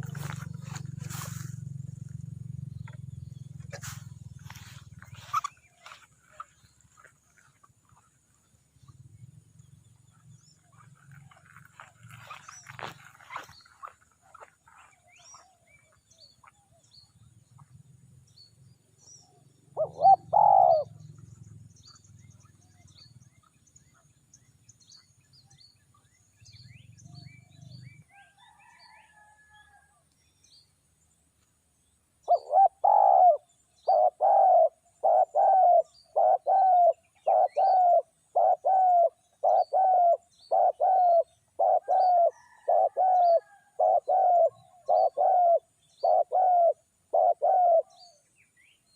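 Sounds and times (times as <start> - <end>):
small birds chirping: 0.0 - 29.3, 30.2 - 48.9
dove cooing: 19.7 - 21.2, 32.3 - 48.2.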